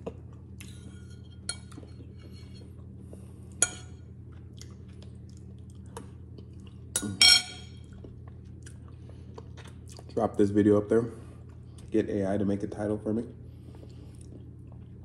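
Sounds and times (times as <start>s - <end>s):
person chewing soup: 0.0s - 7.0s, 7.7s - 10.2s, 11.2s - 12.0s, 13.4s - 15.0s
metal spoon clinking on bowl: 7.0s - 7.7s.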